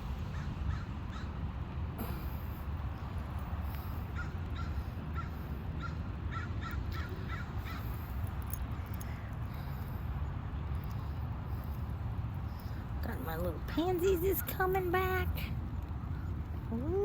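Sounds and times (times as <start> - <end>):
crow cawing: 0.3 - 1.3, 4.2 - 7.9.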